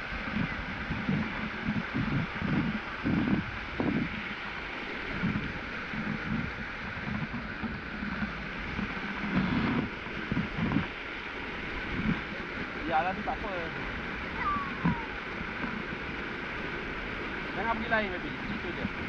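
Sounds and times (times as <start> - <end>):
low thumps and rumbles: 0.0 - 19.0
waterfall rushing: 9.2 - 15.8.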